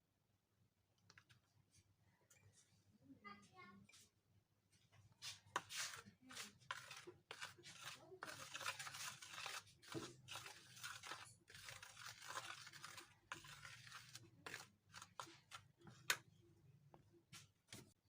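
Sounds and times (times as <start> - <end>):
food crunching and rustling: 6.4 - 15.8.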